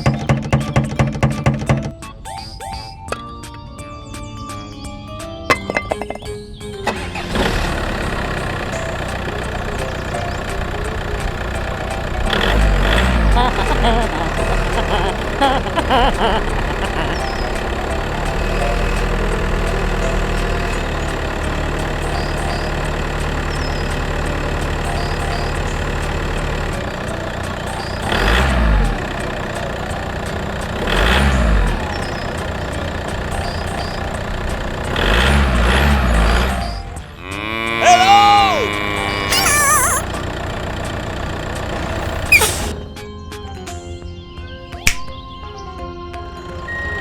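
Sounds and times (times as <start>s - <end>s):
small tractor engine revving: 6.9s - 33.3s, 34.2s - 42.7s
pitched call bending up and down: 37.2s - 40.2s, 42.3s - 42.7s.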